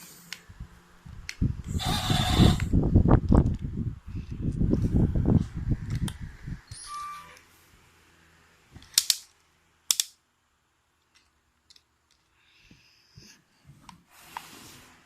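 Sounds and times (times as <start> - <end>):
sharp plastic clicks: 8.8 - 10.2.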